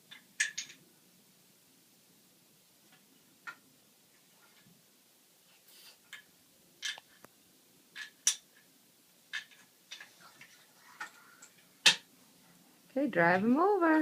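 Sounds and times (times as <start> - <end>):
pencils clacking into toy truck: 7.9 - 8.5.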